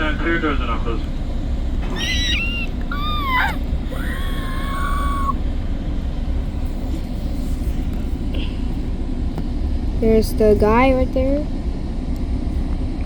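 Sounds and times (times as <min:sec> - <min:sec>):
train interior low rumble: 0:00.0 - 0:13.0
high squealing tones: 0:01.8 - 0:05.4.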